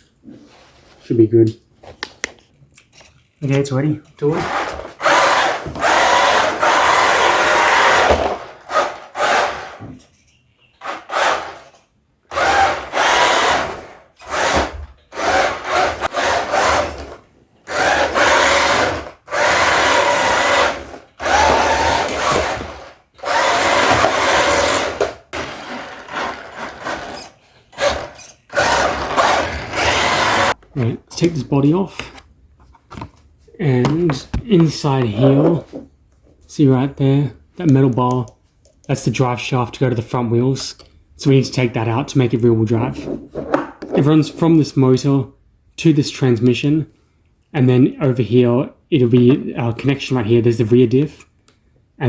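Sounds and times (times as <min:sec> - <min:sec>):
electric motor and gears whirring: 0:12.3 - 0:30.6.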